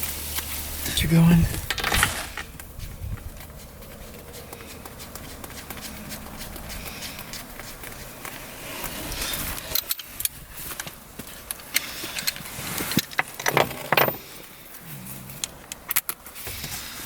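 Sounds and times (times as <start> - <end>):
metal tools clinking and rattling: 9.6 - 10.4, 13.0 - 14.4.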